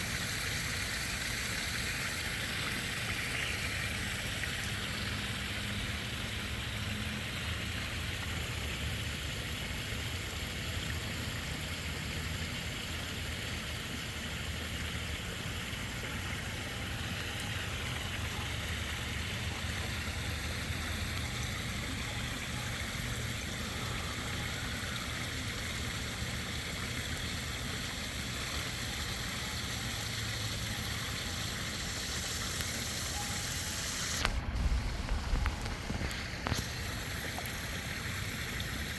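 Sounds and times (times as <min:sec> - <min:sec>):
running water rushing: 0:00.0 - 0:38.9
low rumble: 0:34.3 - 0:36.6.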